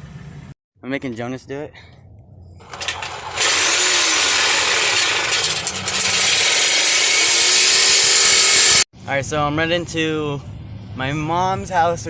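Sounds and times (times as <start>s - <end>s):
reciprocating saw cutting metal pipe: 2.6s - 8.9s.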